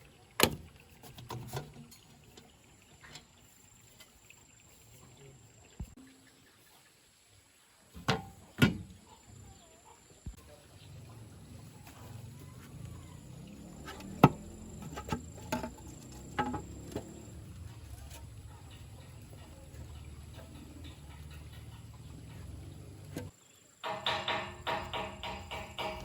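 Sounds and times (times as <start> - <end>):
sharp knocks: 23.2 - 26.0.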